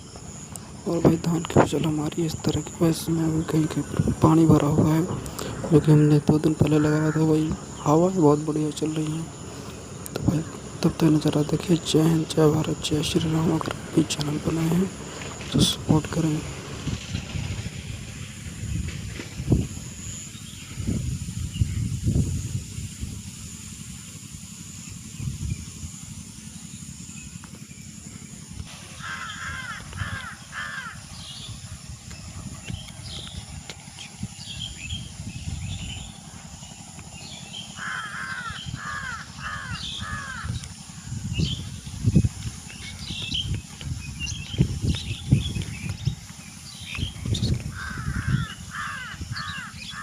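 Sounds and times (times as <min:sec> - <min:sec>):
small birds chirping: 0:00.0 - 0:22.4, 0:23.5 - 0:50.0
wind buffeting microphone: 0:00.0 - 0:24.0, 0:25.0 - 0:26.3, 0:28.4 - 0:50.0
crow cawing: 0:28.8 - 0:31.4, 0:37.7 - 0:40.8, 0:47.7 - 0:50.0.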